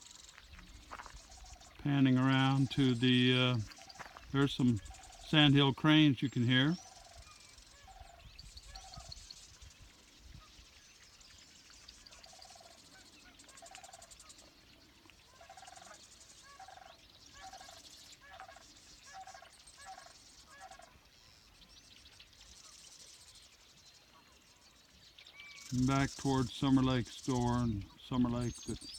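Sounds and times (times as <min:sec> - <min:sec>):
cranes calling faintly: 0:00.0 - 0:05.7, 0:06.6 - 0:10.7, 0:11.7 - 0:21.5, 0:25.3 - 0:28.9.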